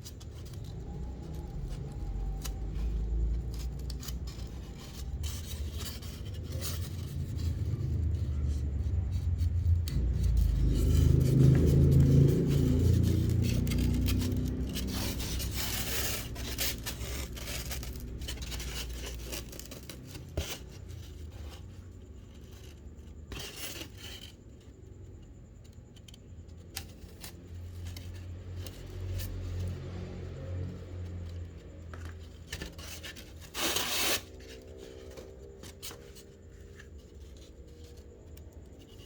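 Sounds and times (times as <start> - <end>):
scratchy handling noises: 0.0 - 39.0
low rumble: 0.4 - 21.3.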